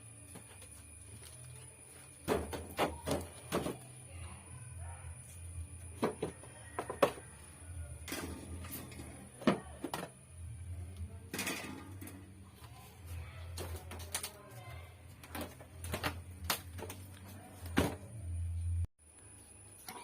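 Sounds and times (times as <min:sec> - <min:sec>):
low steady hum: 0:00.0 - 0:20.0
objects clicking and knocking: 0:13.5 - 0:14.5.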